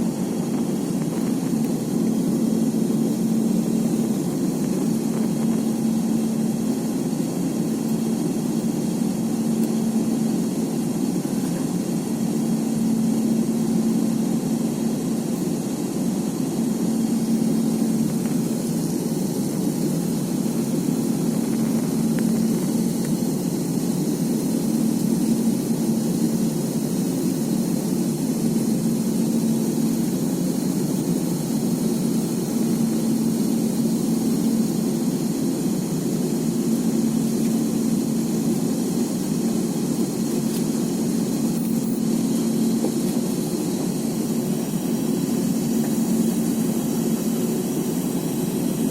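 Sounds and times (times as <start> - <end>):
jet engine drone in flight: 0.0 - 48.9.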